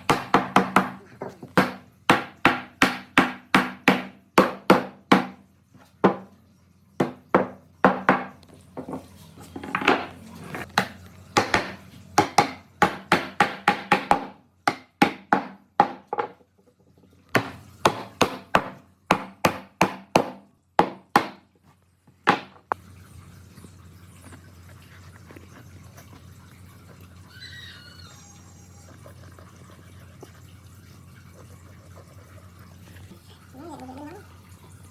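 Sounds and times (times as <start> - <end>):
hammer striking wood: 0.0 - 1.0, 1.6 - 5.4, 6.0 - 6.3, 7.0 - 8.4, 10.8 - 16.4, 17.4 - 21.4, 22.3 - 22.6.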